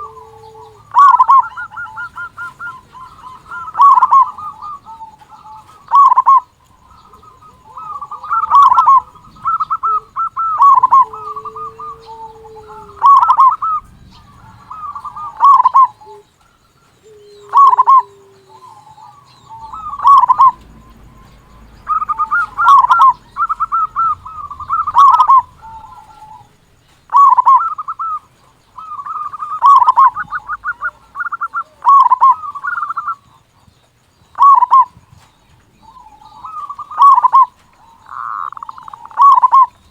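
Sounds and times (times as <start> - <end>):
dove cooing song: 0.0 - 39.9.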